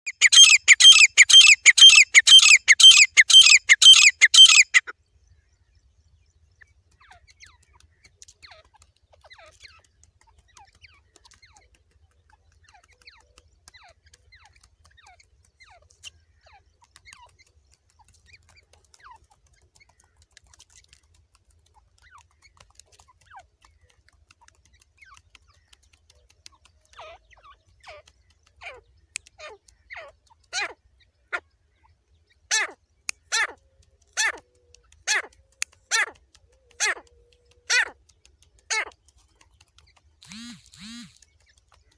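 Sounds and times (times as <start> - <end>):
francolin calling harshly: 0.1 - 4.8, 40.2 - 41.3
faint bird chirps: 0.1 - 8.7, 25.4 - 41.9.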